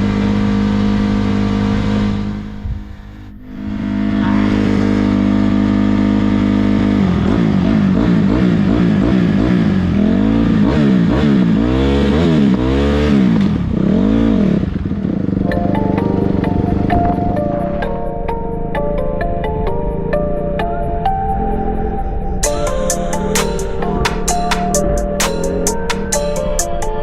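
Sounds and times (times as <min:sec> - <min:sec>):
dirt bike engine revving: 0:03.2 - 0:17.8
music: 0:15.5 - 0:27.0.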